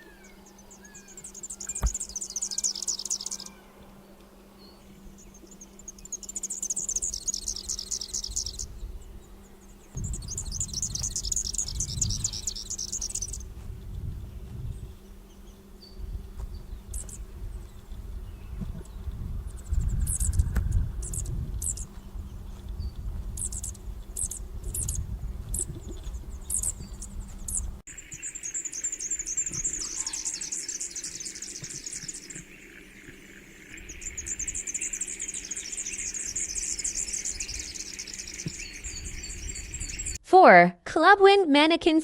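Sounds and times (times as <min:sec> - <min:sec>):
rapid high bird trill: 0:00.0 - 0:03.8, 0:04.6 - 0:13.5, 0:14.8 - 0:21.9, 0:22.8 - 0:40.2
bird chirping: 0:00.0 - 0:40.2
low rumble: 0:09.9 - 0:15.1.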